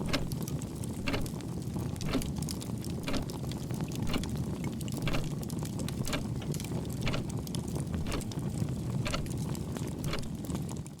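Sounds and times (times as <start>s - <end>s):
sharp ticking: 0.0s - 0.4s, 1.0s - 1.4s, 2.0s - 2.3s, 3.0s - 3.4s, 4.0s - 4.3s, 5.0s - 5.3s, 6.0s - 7.3s.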